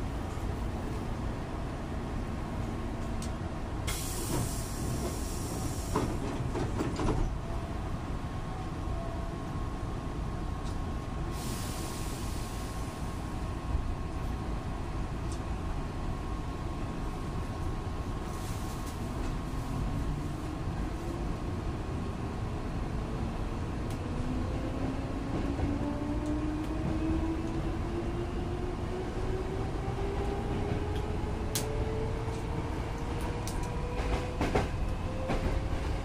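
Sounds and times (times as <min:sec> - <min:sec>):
air hiss bursts: 0:03.9 - 0:06.1, 0:11.3 - 0:12.9.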